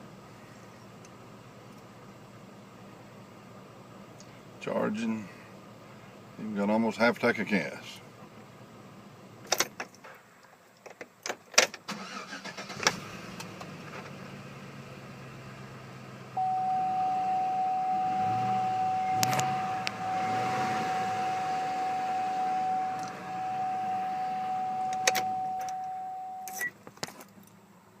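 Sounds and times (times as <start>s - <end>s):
low hum: 16.4s - 26.7s
steady high warning tone: 16.4s - 26.7s.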